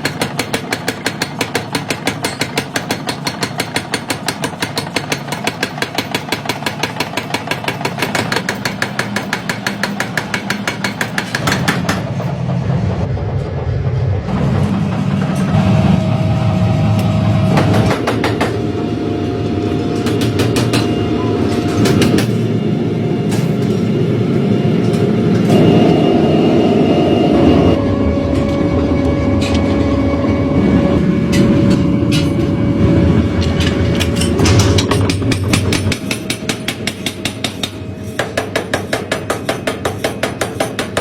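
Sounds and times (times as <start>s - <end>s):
factory machinery hum: 0.0s - 41.0s
machine whine: 11.4s - 38.3s.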